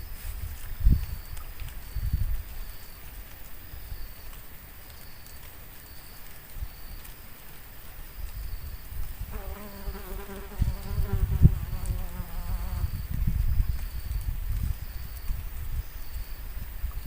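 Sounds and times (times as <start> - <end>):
flying insect buzzing: 9.3 - 13.0.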